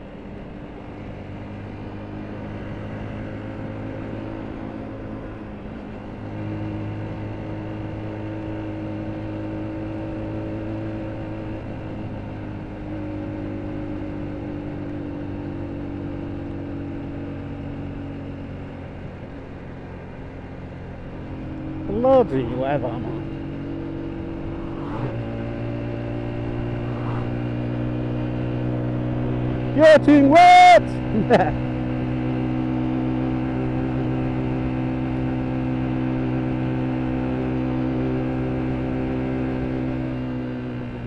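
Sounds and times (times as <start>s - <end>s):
motorcycle engine running: 0.0s - 29.8s
wind noise: 24.0s - 25.5s, 26.3s - 27.7s.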